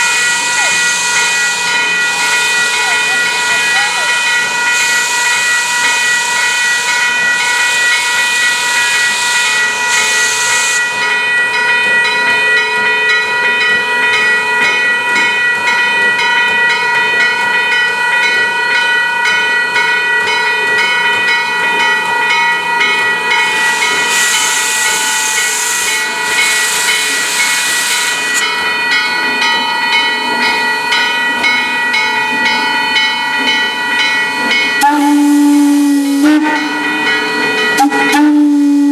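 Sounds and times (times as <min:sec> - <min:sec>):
steady high-pitched whistling: 0:00.0 - 0:11.1, 0:22.8 - 0:28.5
steam locomotive hissing steam: 0:00.0 - 0:12.1, 0:21.3 - 0:38.9
bursts of venting steam: 0:23.4 - 0:28.4.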